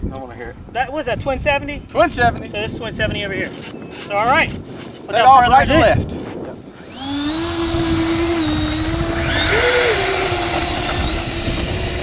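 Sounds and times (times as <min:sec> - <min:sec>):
electric fan motors whining: 0:02.5 - 0:12.0
higher fan whine with rushing hiss: 0:06.8 - 0:12.0.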